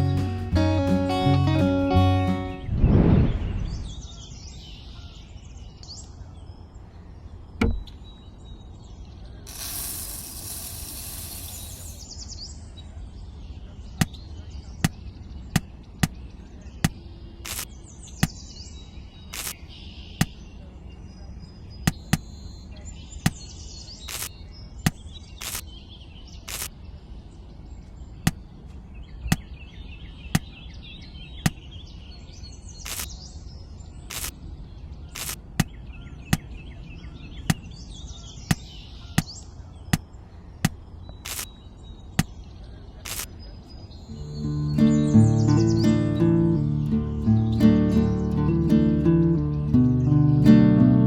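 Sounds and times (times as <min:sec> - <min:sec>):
birds chirping: 0:00.0 - 0:51.0
sharp taps: 0:21.9 - 0:22.3.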